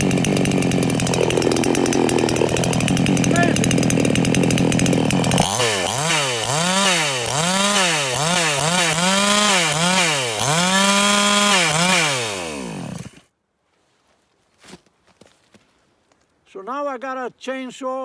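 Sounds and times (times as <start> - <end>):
chainsaw revving: 0.0 - 13.2.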